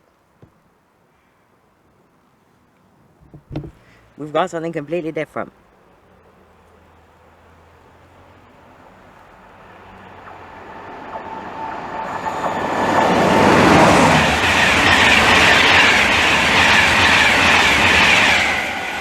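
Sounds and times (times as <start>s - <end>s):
electric train passing: 5.6s - 19.0s
train wheels rushing on rails: 8.5s - 19.0s.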